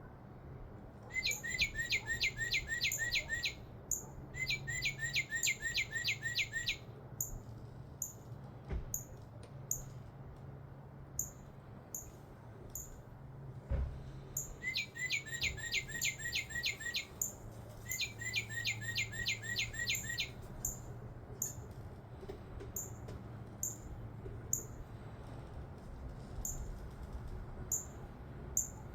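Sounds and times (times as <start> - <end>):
bird whistling song: 1.1 - 7.3, 14.4 - 21.6.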